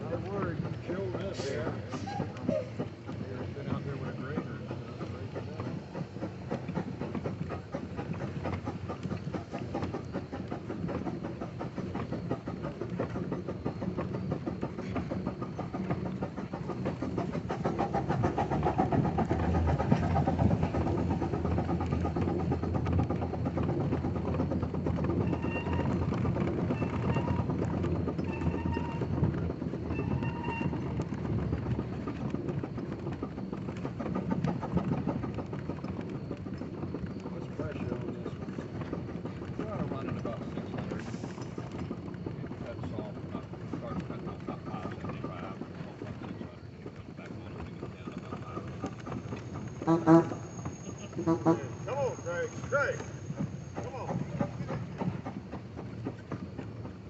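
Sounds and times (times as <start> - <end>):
steam engine rhythmic clatter: 0.0 - 57.0
steam whistle toots: 29.9 - 30.8, 49.8 - 50.4.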